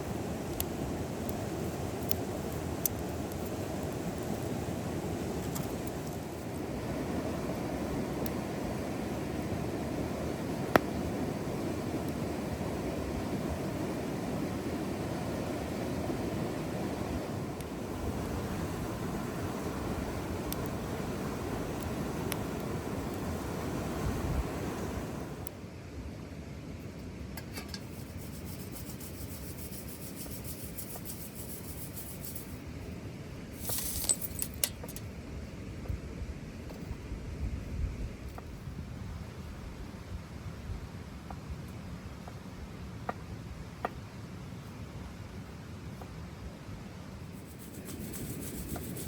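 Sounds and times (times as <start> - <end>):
low rushing noise: 0.0 - 25.5.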